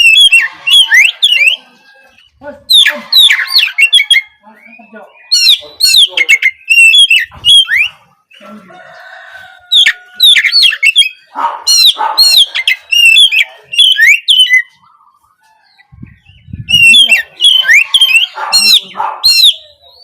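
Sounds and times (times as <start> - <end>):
bird singing whistled phrases: 0.0 - 1.7, 2.7 - 8.0, 10.2 - 14.8, 16.2 - 20.0.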